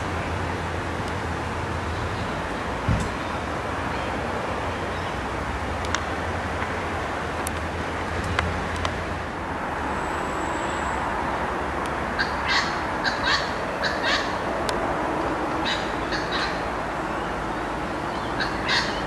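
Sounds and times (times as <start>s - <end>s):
outdoor background noise: 0.0s - 19.0s
bird calling: 12.1s - 14.5s, 15.5s - 19.0s.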